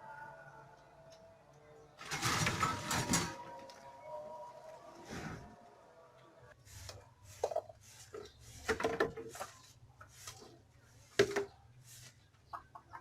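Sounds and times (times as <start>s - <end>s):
objects knocking and clattering: 2.0s - 3.6s, 7.4s - 9.6s, 11.1s - 11.6s.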